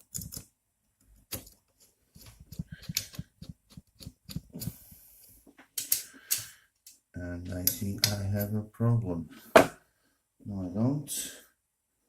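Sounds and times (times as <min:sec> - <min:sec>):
clicks of small parts being fitted: 0:05.8 - 0:07.0.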